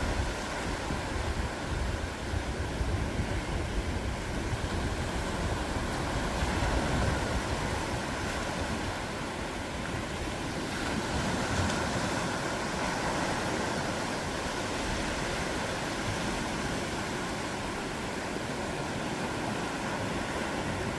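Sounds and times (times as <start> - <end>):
ocean surf breaking: 0.0 - 20.9.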